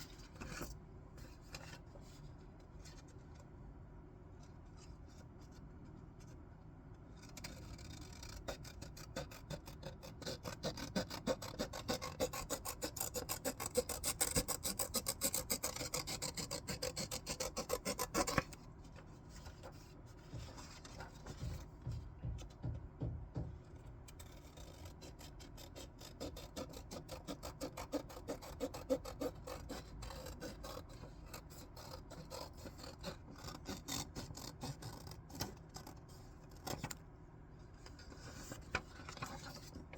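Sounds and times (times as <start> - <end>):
scissors cutting paper: 7.2 - 18.6, 24.1 - 37.0.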